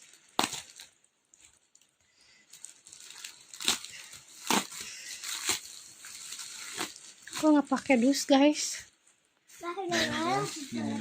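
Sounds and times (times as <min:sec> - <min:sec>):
package ripping open: 0:00.0 - 0:01.9, 0:02.5 - 0:07.5
package crinkling: 0:00.0 - 0:08.1.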